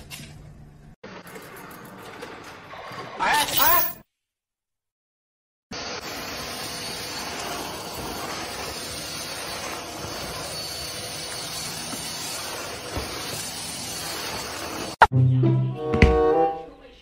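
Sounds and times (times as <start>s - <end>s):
vacuum cleaner running: 5.7s - 15.0s.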